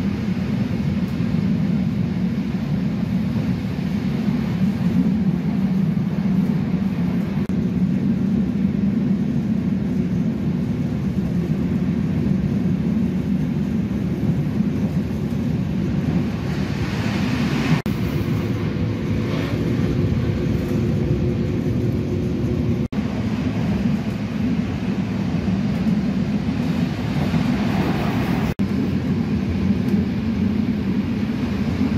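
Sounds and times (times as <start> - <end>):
train rumbling from inside carriage: 0.0 - 31.9.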